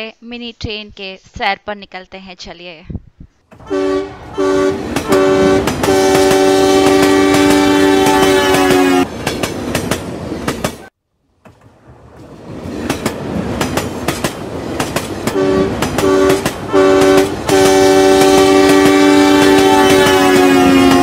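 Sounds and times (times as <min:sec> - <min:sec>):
train wheels clattering: 0:03.5 - 0:21.0
two-note train horn: 0:03.6 - 0:09.1, 0:15.3 - 0:21.0.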